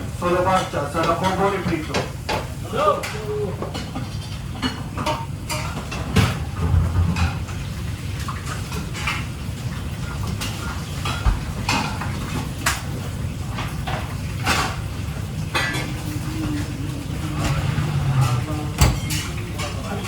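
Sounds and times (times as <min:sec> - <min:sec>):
dishes and utensils clattering: 0:00.2 - 0:20.0
steady low hum: 0:06.2 - 0:10.4.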